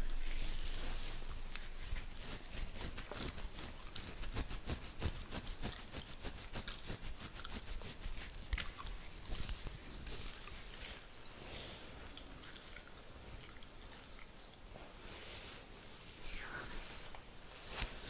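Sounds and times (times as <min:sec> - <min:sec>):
fingernails scratching a beard: 0:01.5 - 0:08.6.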